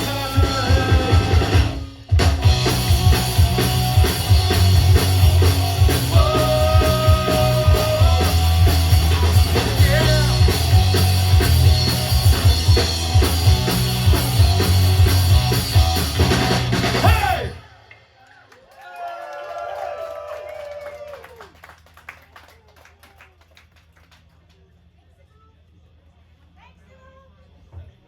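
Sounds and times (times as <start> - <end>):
punk rock band playing: 0.0 - 17.6.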